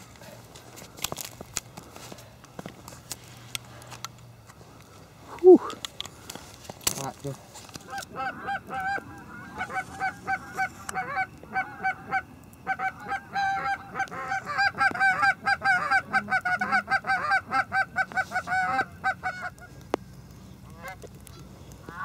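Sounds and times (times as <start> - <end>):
geese honking: 7.8 - 19.9, 20.6 - 22.0.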